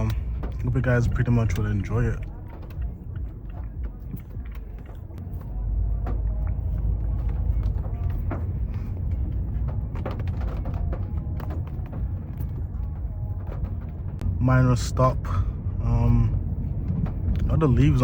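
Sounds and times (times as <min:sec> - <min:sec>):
car driving on wet road: 0:00.0 - 0:18.0.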